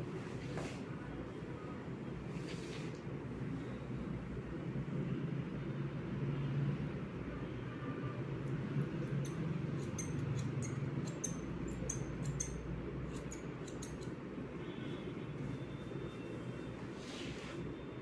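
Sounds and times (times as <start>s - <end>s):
scissors snipping hair: 9.0s - 14.2s.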